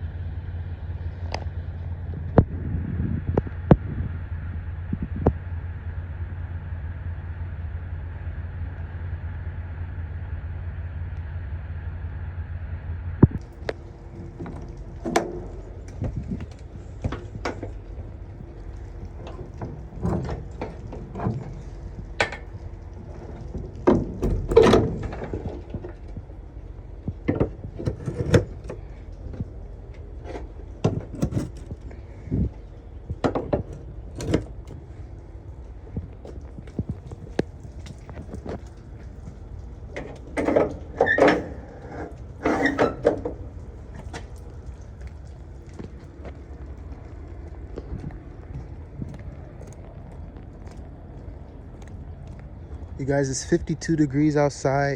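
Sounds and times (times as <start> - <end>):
truck engine idling: 0.0 - 54.9
knocks and clunks: 13.2 - 53.9
footsteps: 43.3 - 54.0.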